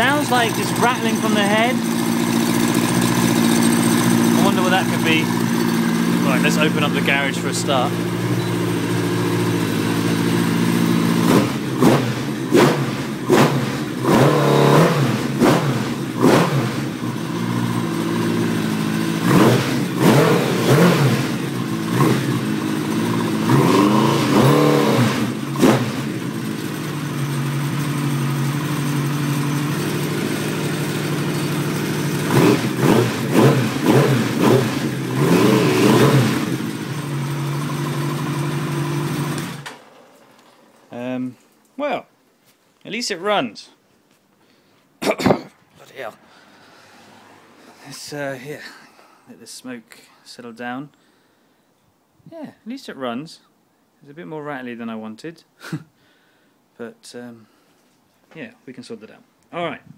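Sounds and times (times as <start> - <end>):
engine rattle: 0.0 - 41.0
motorcycle engine idling and revving: 0.0 - 41.2.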